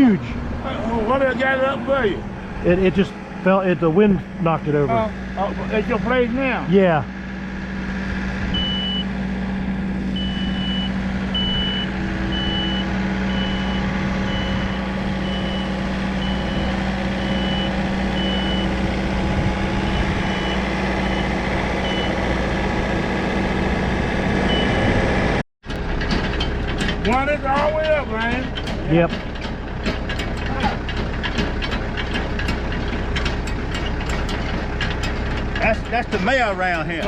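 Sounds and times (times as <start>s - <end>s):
diesel engine drone: 0.0s - 37.0s
reversing alarm beeping: 8.5s - 9.1s, 10.1s - 18.8s, 19.8s - 22.2s, 24.5s - 25.0s.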